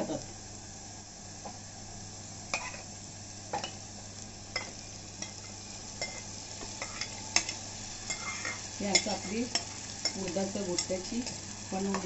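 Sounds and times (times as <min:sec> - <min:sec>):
paste sizzling in oil: 0:01.8 - 0:12.0
spoon scraping a metal pot: 0:06.8 - 0:10.2.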